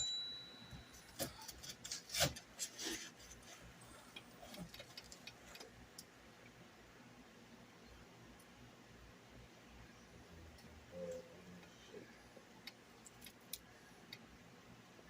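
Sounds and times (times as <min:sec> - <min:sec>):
high metallic ring: 0:00.0 - 0:01.2.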